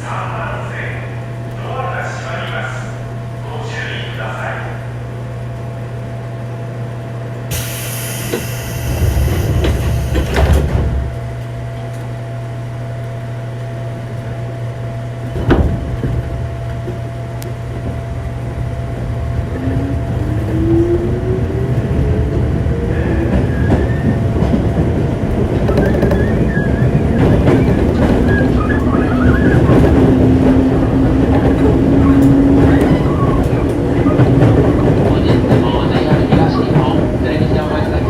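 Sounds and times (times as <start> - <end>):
air hiss: 7.5 - 10.5.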